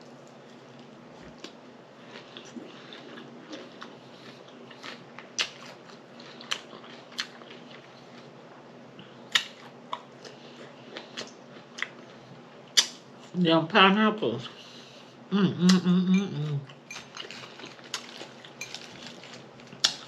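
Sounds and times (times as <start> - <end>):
person chewing and lip smacking: 0.2 - 8.2, 9.3 - 12.1, 15.7 - 20.0.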